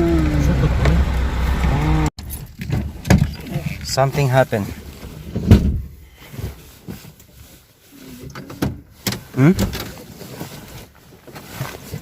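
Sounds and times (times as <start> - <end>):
dull thumps inside a car: 5.3 - 7.0.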